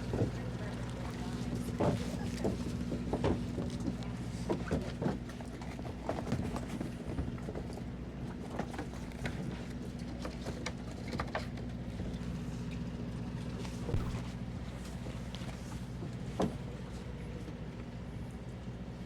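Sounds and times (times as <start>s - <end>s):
outboard engines idling: 0.0s - 14.5s.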